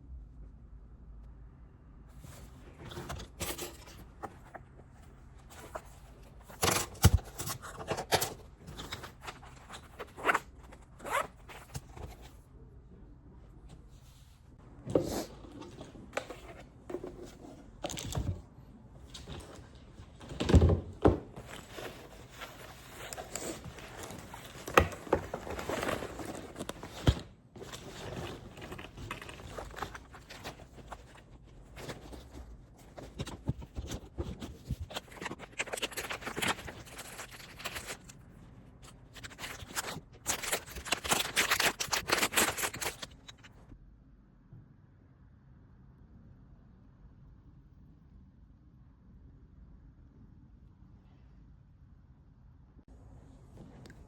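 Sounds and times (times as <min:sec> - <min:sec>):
scraping or rustling: 0:19.0 - 0:43.6.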